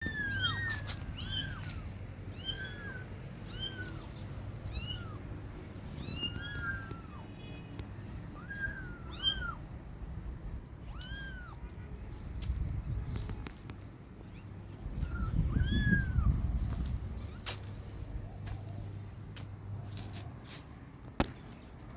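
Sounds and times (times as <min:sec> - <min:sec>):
kittens mewing: 0:00.0 - 0:07.3, 0:08.2 - 0:09.7, 0:10.8 - 0:11.6, 0:14.2 - 0:18.2.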